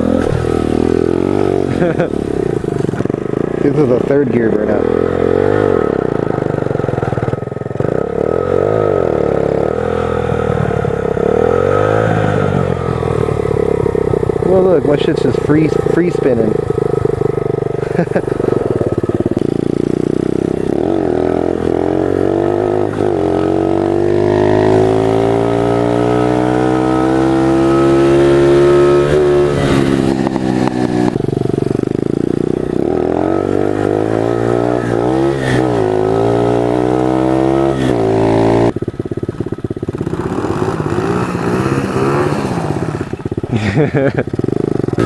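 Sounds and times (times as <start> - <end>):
pit bike engine revving: 0.0 - 45.0.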